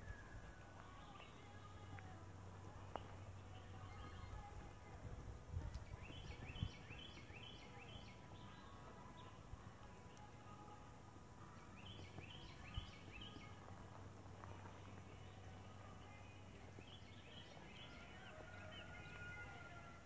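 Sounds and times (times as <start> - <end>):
low steady hum: 0.0 - 20.0
bird chirping: 5.7 - 10.8, 11.4 - 13.8, 14.8 - 20.0.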